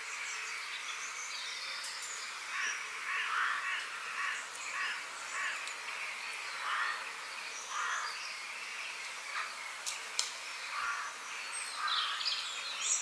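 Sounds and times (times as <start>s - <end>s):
small birds chirping: 0.0s - 13.0s
steady outdoor hiss: 0.0s - 13.0s
crow cawing: 2.6s - 5.6s, 6.6s - 7.0s, 7.7s - 8.1s, 10.7s - 11.1s.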